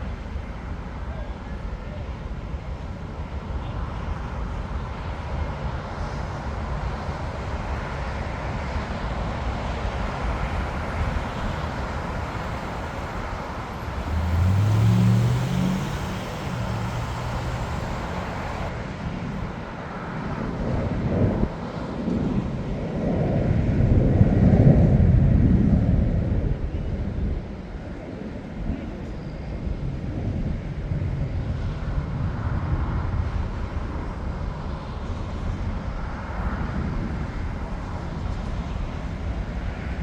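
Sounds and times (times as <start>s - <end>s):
jet aircraft rumble: 0.0s - 40.0s
vehicle engine rising and falling: 9.2s - 18.7s.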